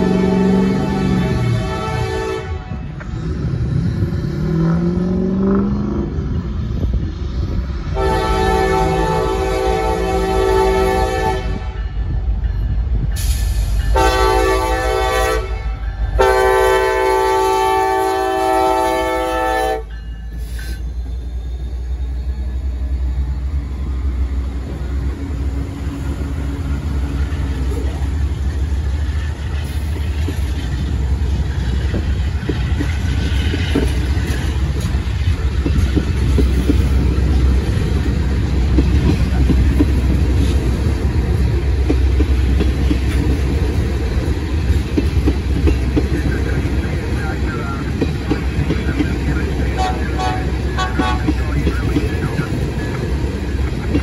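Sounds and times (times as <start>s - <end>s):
locomotive chime air horn: 0.0s - 2.9s, 8.0s - 12.1s, 13.9s - 20.9s, 49.6s - 51.4s
locomotive engines running: 2.8s - 54.0s.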